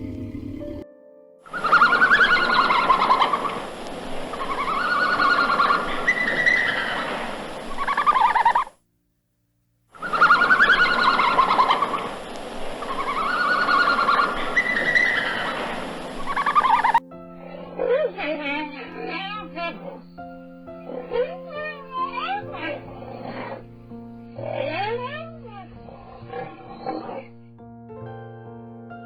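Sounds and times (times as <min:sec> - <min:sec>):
warbling bird calls: 0:01.5 - 0:08.8, 0:10.0 - 0:27.4.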